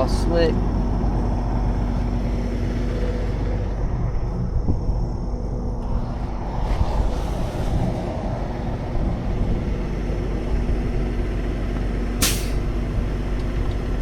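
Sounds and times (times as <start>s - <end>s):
truck engine rumbling: 0.0s - 14.0s
short sharp hiss: 12.2s - 12.6s.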